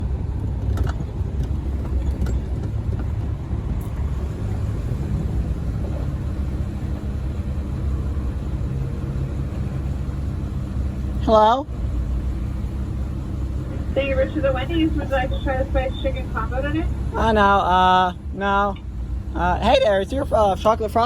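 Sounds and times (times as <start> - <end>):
car engine rumble inside cabin: 0.0 - 21.0.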